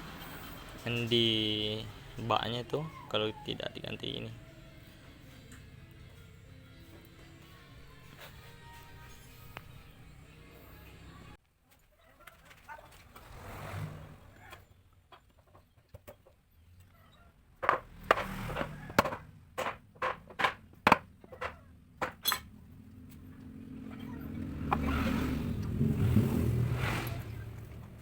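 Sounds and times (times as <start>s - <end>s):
metallic clinks and knocks: 17.7s - 22.6s.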